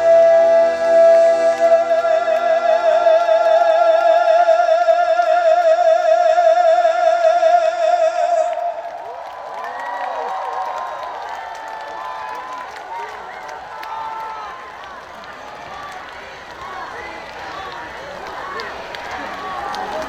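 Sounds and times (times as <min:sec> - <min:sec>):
band playing: 0:00.0 - 0:04.2
man singing with vibrato: 0:00.0 - 0:09.0
crowd cheering: 0:00.0 - 0:20.0.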